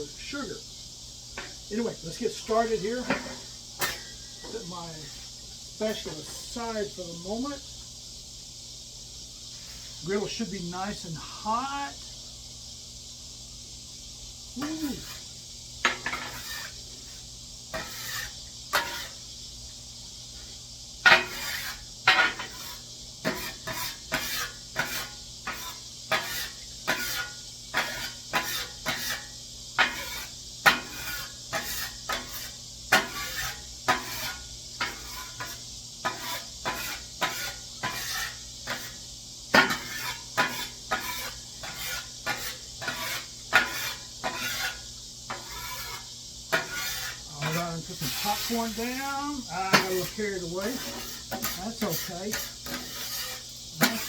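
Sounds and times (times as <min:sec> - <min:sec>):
oil sizzling on a griddle: 0:00.0 - 0:54.0
metal scraper scraping griddle: 0:02.4 - 0:04.1, 0:05.8 - 0:06.6, 0:14.6 - 0:19.2, 0:21.0 - 0:54.0.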